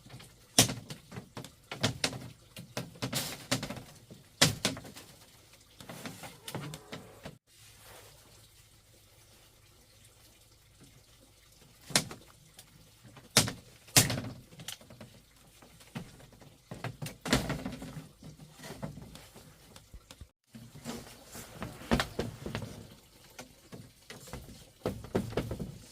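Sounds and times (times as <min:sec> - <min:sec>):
sharp knocks and thuds: 0:24.2 - 0:25.9.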